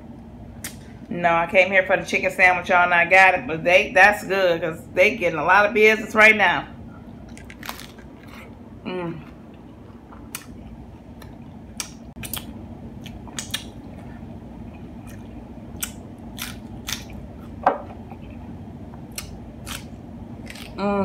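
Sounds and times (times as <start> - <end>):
low background hum: 0.0 - 21.0
chewing crunchy food: 7.2 - 8.6, 9.2 - 18.4, 19.1 - 20.8
wet mouth clicks: 11.8 - 13.7.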